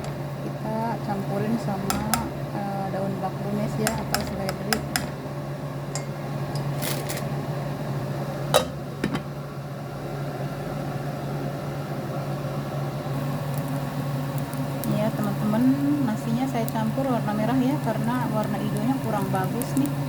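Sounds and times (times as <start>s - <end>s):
kitchen appliance motor humming: 0.0s - 5.3s
utensil clinking on pot: 3.8s - 5.2s, 5.9s - 7.3s, 8.6s - 9.3s.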